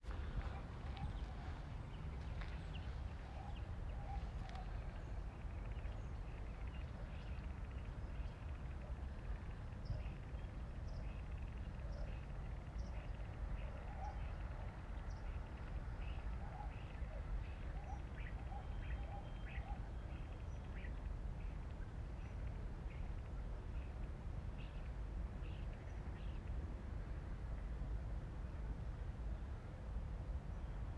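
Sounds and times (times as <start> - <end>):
birds chirping: 0.1 - 21.1.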